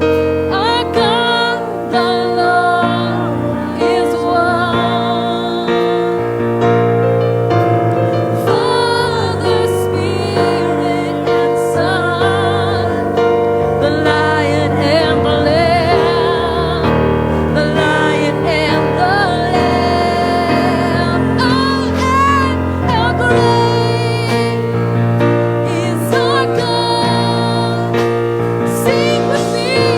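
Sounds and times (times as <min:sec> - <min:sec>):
person singing with vibrato: 0:00.0 - 0:29.9
sustained keyboard chords: 0:00.0 - 0:29.9.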